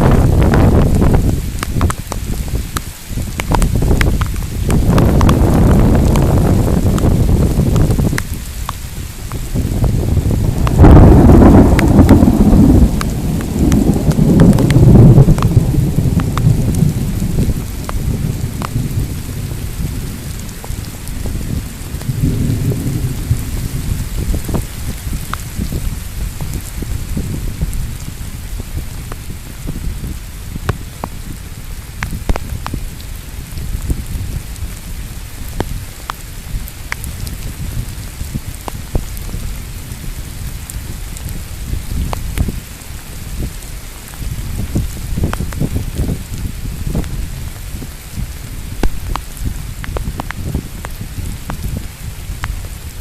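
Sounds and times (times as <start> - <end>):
rain hissing: 0.0 - 53.0
raindrops ticking: 0.0 - 53.0
rolling thunder: 3.6 - 8.4, 9.0 - 30.7.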